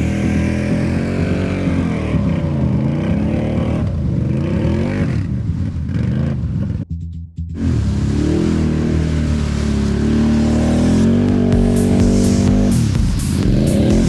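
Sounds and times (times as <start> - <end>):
atv engine revving: 0.0 - 5.3.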